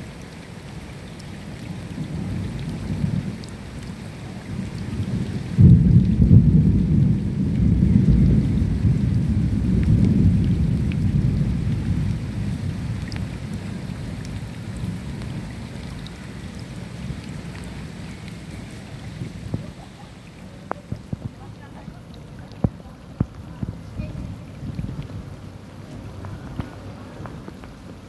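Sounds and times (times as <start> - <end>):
steady rain: 0.0 - 28.0
rolling thunderclap: 4.4 - 15.7.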